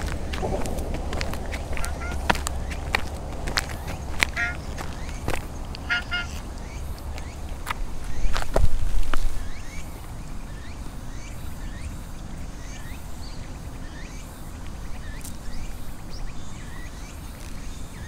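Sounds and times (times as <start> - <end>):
low outdoor rumble: 0.0 - 9.5
small birds chirping: 0.0 - 18.0.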